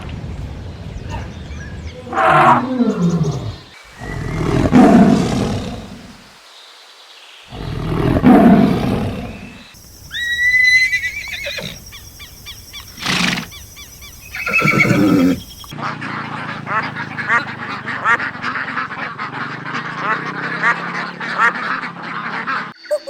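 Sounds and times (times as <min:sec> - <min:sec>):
tiger roaring: 0:02.0 - 0:06.2, 0:07.5 - 0:09.6, 0:14.4 - 0:15.6
horse snorting: 0:02.1 - 0:06.2, 0:07.5 - 0:09.5, 0:13.0 - 0:13.6, 0:14.3 - 0:15.7, 0:16.4 - 0:22.6
horse whinnying: 0:10.1 - 0:11.8, 0:13.0 - 0:13.5, 0:14.3 - 0:15.5.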